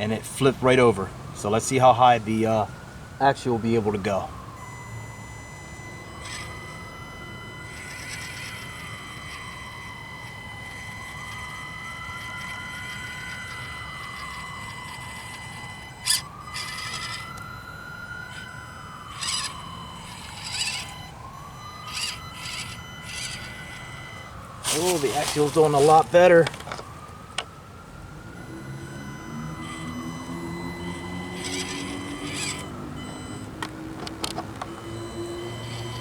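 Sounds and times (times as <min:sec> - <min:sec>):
distant siren wailing: 0:00.0 - 0:36.0
steady high whine: 0:00.0 - 0:36.0
toy crawler electric motor and gears: 0:00.0 - 0:36.0.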